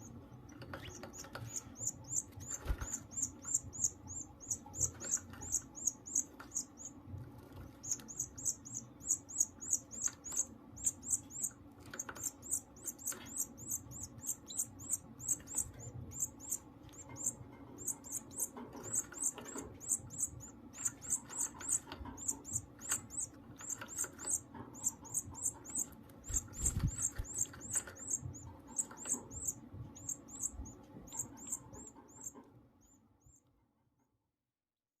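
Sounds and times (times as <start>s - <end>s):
chick begging peeps: 7.6s - 32.5s.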